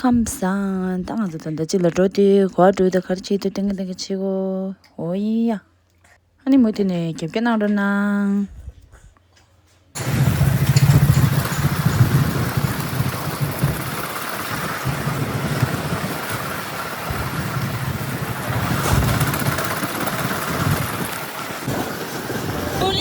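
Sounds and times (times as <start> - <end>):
motor vehicle rumble: 10.0 - 23.0.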